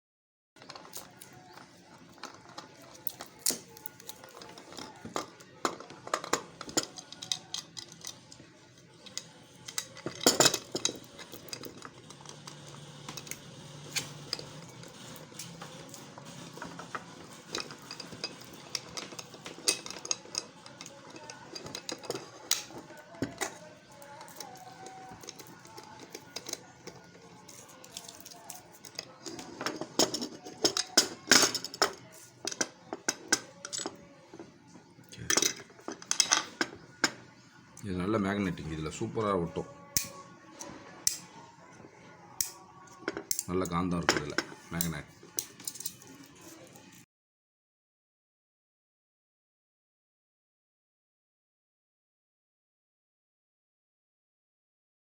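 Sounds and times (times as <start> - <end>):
metal parts clinking: 2.1 - 8.4, 9.0 - 34.0, 35.2 - 37.2, 42.4 - 46.6.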